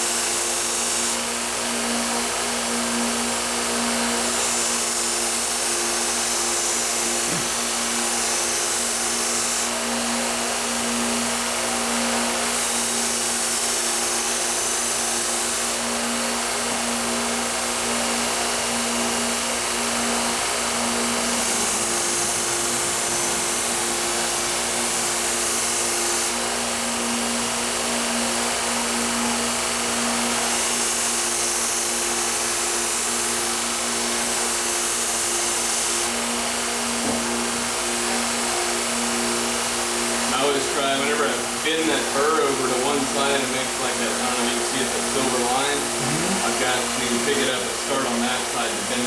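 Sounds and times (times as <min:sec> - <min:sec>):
blade hissing on abrasive: 0:00.0 - 0:01.4, 0:04.0 - 0:10.0, 0:11.9 - 0:16.1, 0:19.0 - 0:26.6, 0:30.2 - 0:49.0
sharpening machine motor hum: 0:00.0 - 0:49.0.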